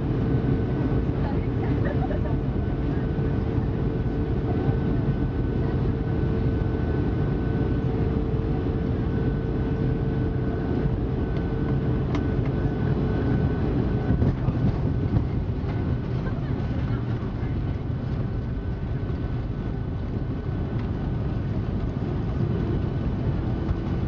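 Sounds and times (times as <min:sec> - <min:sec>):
low rumble of aircraft engines: 0:00.0 - 0:24.0
steady whine: 0:00.0 - 0:24.0.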